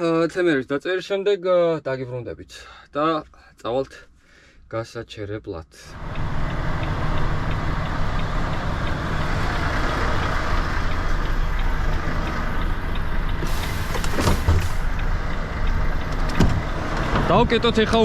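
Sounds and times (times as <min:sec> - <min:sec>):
diesel truck engine idling: 0:06.0 - 0:18.0.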